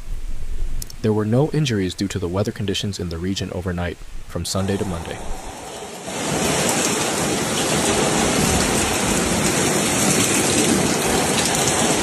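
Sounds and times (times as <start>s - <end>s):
heavy rain pouring: 4.1s - 12.0s.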